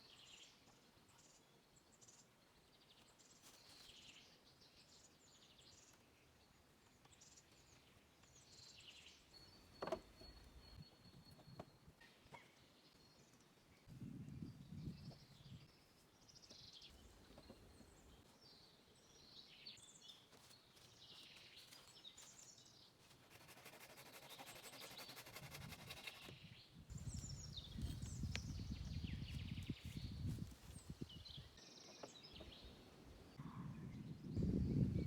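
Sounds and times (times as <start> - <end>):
birds chirping: 24.2 - 35.0.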